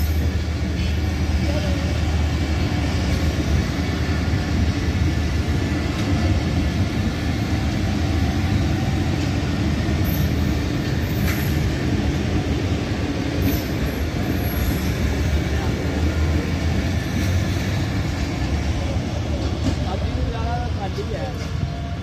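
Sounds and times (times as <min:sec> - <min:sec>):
train wheels rumbling on rails: 0:00.0 - 0:22.0
high wheel squeaks: 0:13.4 - 0:15.4.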